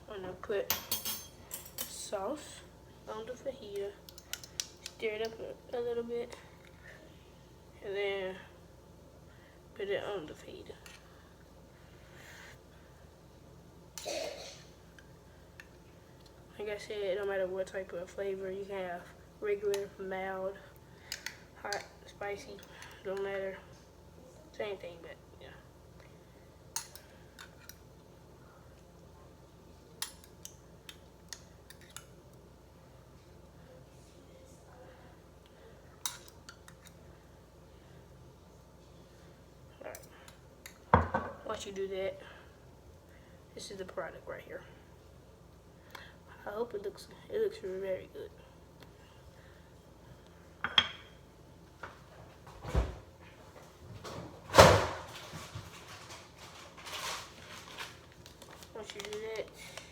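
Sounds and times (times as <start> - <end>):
kitchen utensils and dishes clinking: 0.6 - 2.1.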